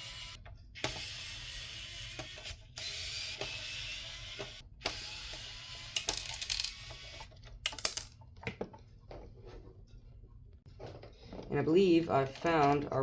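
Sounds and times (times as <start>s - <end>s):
electric screwdriver whirring: 0.0s - 7.3s
plastic parts clicking and knocking: 5.9s - 9.2s.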